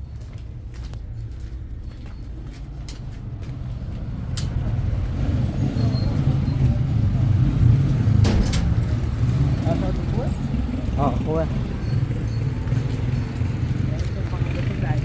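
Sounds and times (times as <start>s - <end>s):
road vehicle rumble: 0.0s - 15.0s.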